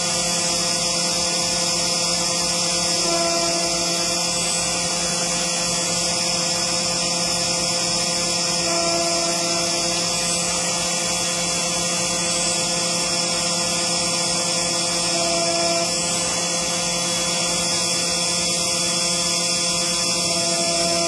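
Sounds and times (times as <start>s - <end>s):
engraving machine spindle whine: 0.0s - 21.0s
stepper motor tones: 0.0s - 21.0s.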